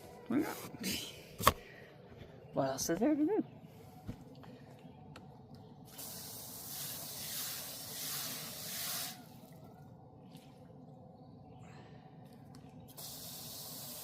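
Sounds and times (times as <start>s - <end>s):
garden hose spraying water: 5.8s - 9.6s, 12.8s - 14.0s.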